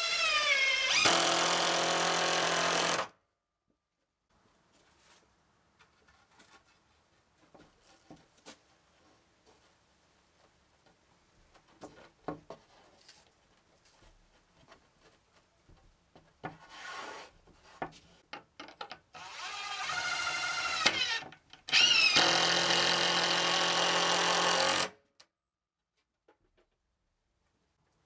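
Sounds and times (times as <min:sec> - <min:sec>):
power drill running: 0:00.0 - 0:03.1, 0:19.2 - 0:24.9.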